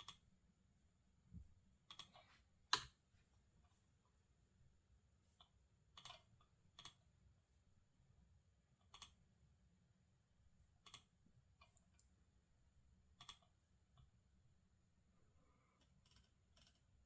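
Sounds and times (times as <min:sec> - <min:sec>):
computer keyboard and mouse clicks: 0:00.0 - 0:00.2, 0:01.9 - 0:03.0
low steady background hum: 0:00.0 - 0:17.0.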